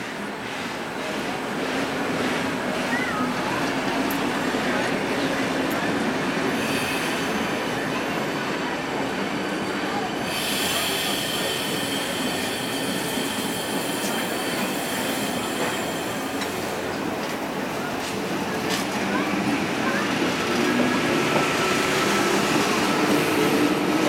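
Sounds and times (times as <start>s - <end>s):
steam train rumbling on rails: 0.0s - 24.0s
high wheel squeal: 10.1s - 16.8s.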